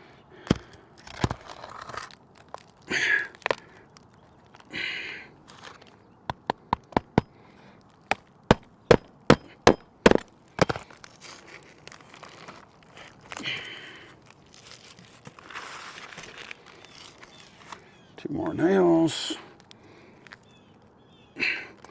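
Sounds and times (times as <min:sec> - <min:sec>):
shingle scraping and rustling: 0:00.4 - 0:18.6
hammer driving nails into shingles: 0:06.3 - 0:07.3, 0:08.1 - 0:10.9.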